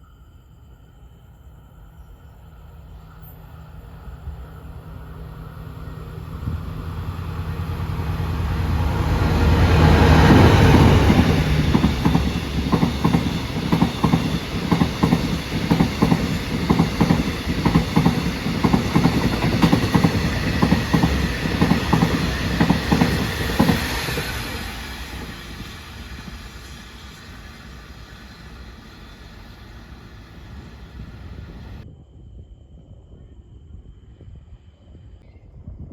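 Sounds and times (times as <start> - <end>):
diesel locomotive engine: 2.4 - 31.8
train wheels clickety-clack: 8.6 - 31.8.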